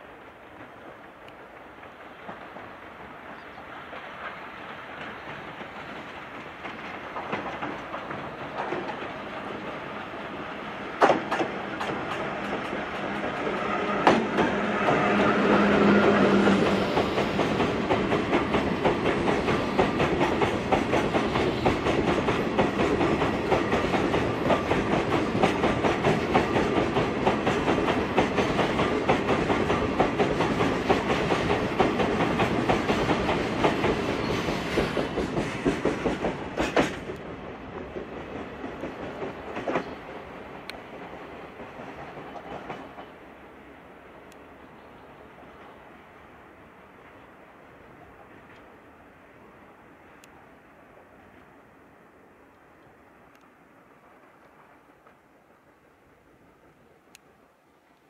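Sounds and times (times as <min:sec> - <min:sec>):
train wagons clattering over rails: 0:00.1 - 0:43.3.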